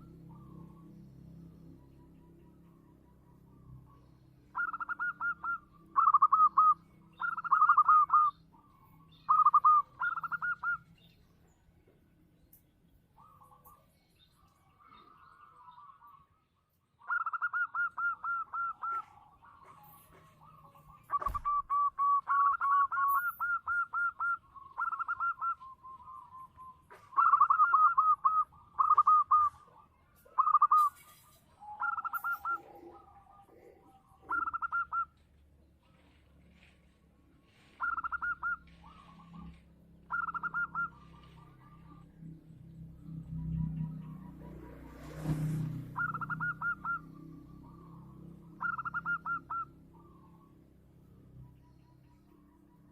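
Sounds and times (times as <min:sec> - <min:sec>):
dove trilled cooing: 0:00.0 - 0:10.9, 0:17.0 - 0:35.2, 0:37.5 - 0:42.1, 0:43.2 - 0:50.6.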